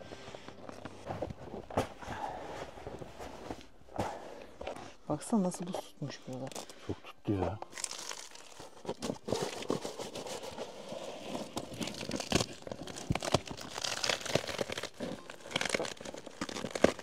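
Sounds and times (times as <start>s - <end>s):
icy tent fabric crinkling: 6.5s - 17.0s.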